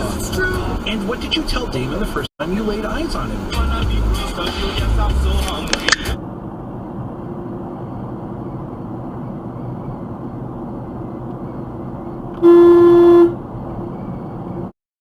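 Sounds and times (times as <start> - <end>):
road noise from moving car: 0.0 - 14.8
car horn honk: 12.4 - 13.4.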